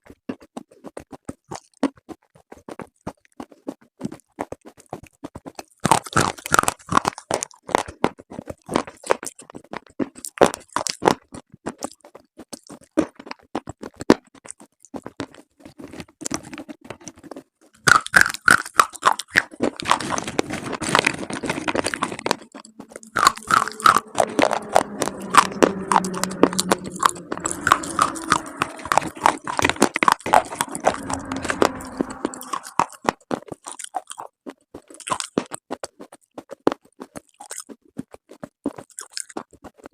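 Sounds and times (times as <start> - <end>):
crunching and chewing: 0.0 - 39.9.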